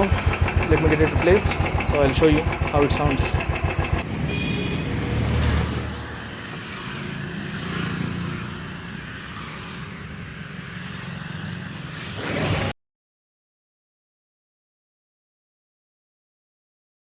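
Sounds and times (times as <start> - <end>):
motorcycle engine idling: 0.0 - 4.5.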